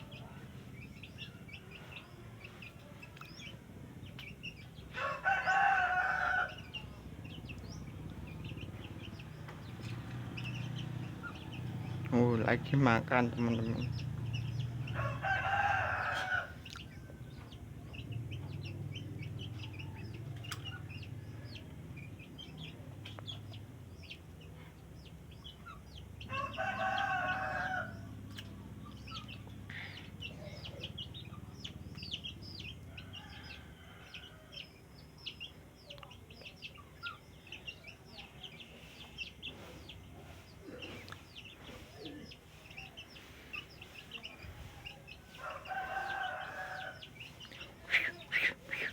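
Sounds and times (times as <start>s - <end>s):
faint chirps and ticks: 0.1s - 4.9s, 16.1s - 26.4s, 27.6s - 48.2s
rooster crowing: 4.9s - 6.8s, 14.8s - 17.2s, 26.2s - 28.1s, 32.9s - 34.8s, 44.6s - 47.4s.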